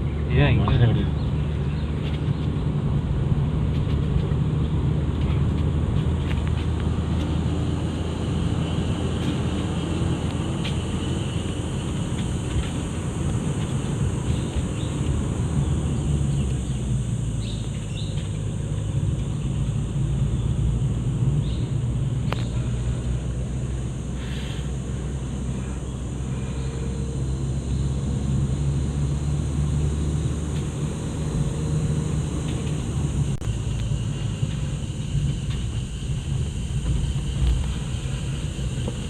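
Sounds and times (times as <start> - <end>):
vehicle engine and road noise: 0.0 - 39.0
shrill insect drone: 7.6 - 39.0
bird chirps: 17.4 - 18.3.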